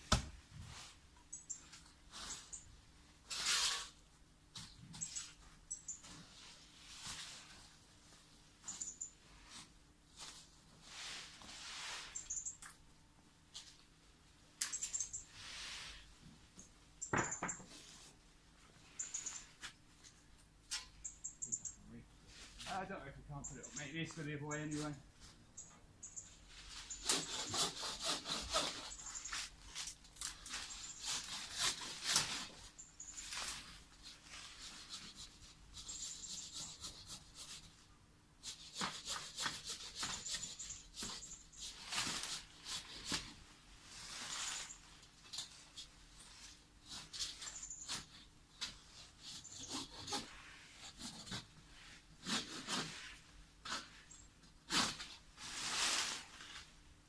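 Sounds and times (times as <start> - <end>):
hand saw cutting wood: 26.9 - 29.1, 30.5 - 32.6, 38.4 - 43.3, 49.0 - 51.5, 52.2 - 53.9, 54.7 - 55.2.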